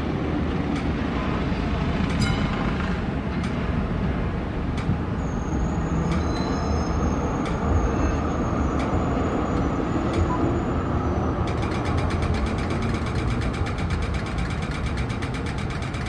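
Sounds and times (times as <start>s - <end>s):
street traffic rumbling: 0.0s - 16.0s
sharp clicks: 6.1s - 6.5s, 11.4s - 16.0s
fast even ticking: 11.5s - 16.0s.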